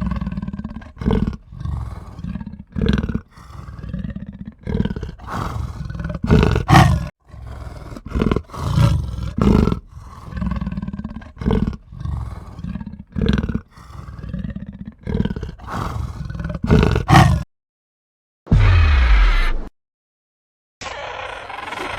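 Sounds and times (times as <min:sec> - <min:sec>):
animal growling: 0:00.0 - 0:17.5.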